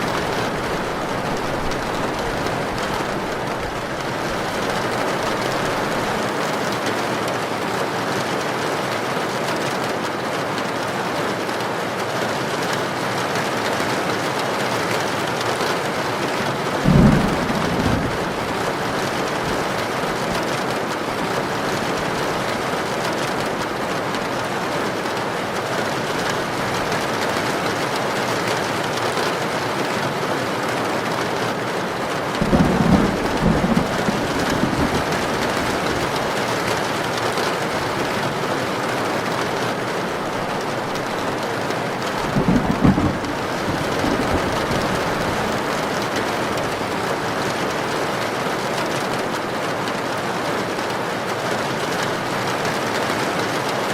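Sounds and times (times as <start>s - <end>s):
low thunder rumbling: 0.0s - 6.2s, 16.8s - 20.5s, 32.3s - 37.3s, 40.2s - 47.0s
heavy rain: 0.0s - 53.9s.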